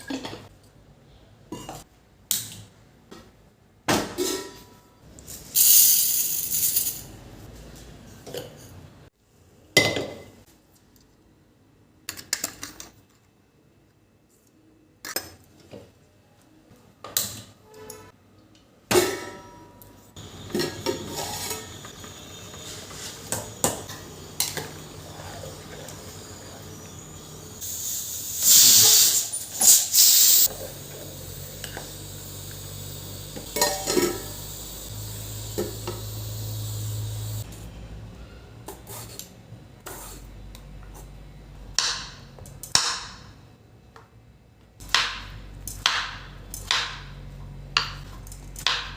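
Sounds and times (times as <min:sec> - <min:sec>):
dishes and pots clinking: 0:00.0 - 0:00.5, 0:01.5 - 0:01.9, 0:03.9 - 0:04.9, 0:18.9 - 0:24.9, 0:33.4 - 0:34.4
steady hiss and low hum: 0:20.1 - 0:37.7.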